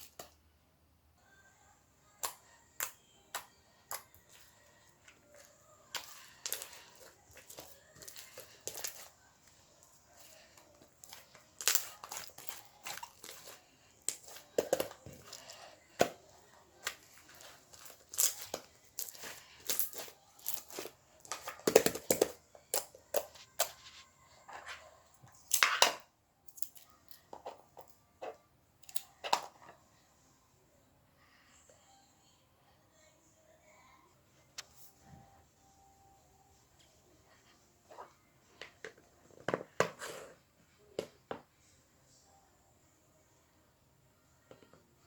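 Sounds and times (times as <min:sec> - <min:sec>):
slime squeezed with sticky crackles: 0:10.3 - 0:15.6, 0:16.8 - 0:20.9.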